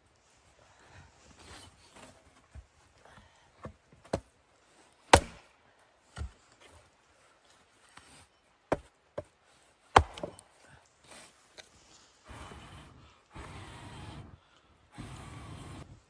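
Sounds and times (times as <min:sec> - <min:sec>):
wood being chopped: 0:05.1 - 0:05.5, 0:08.7 - 0:09.3, 0:09.9 - 0:10.5.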